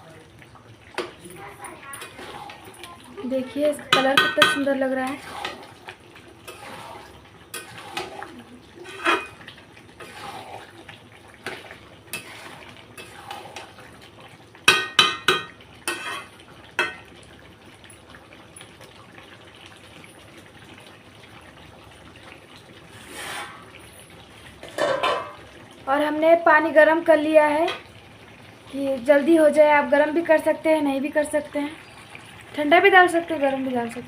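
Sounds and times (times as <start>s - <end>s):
metal utensils clanking on a pan: 0.9s - 2.9s, 3.7s - 5.7s, 6.4s - 9.4s, 11.4s - 13.7s, 14.7s - 17.1s, 24.6s - 25.5s.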